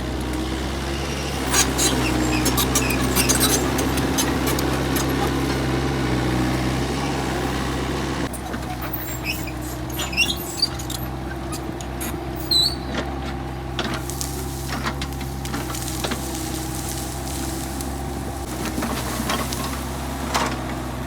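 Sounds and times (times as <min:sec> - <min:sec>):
excavator diesel engine running: 0:00.0 - 0:21.0
short high squeaks: 0:01.4 - 0:05.6, 0:08.3 - 0:13.1.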